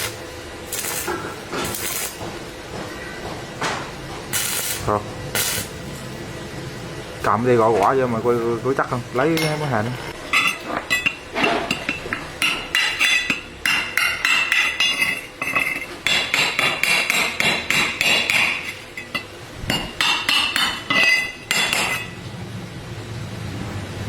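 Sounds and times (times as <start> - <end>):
hammer tapping on metal: 10.4 - 22.2.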